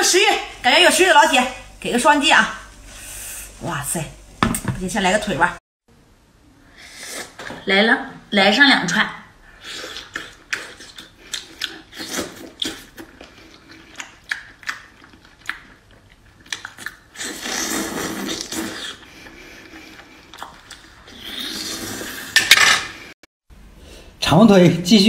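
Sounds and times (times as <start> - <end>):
biting and chewing seafood: 9.7 - 21.3
wet mouth clicks: 16.4 - 19.0.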